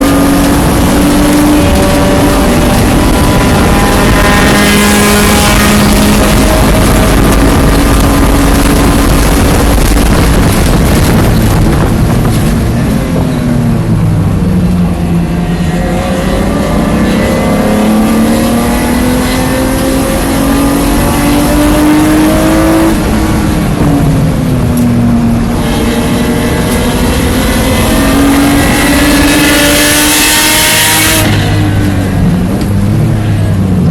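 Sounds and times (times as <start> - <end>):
race car engine running hard: 0.0 - 33.9
wind and road noise: 0.0 - 33.9.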